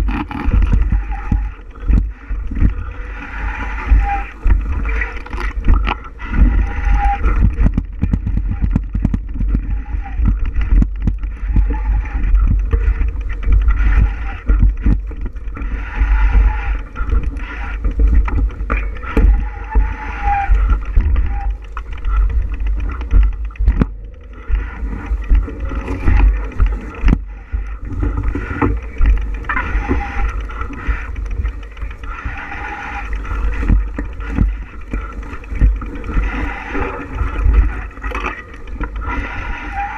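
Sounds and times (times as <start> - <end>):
bicycle knocks and rattles: 0.0 - 2.9, 4.0 - 32.3
wind rumbling on microphone: 0.0 - 39.9.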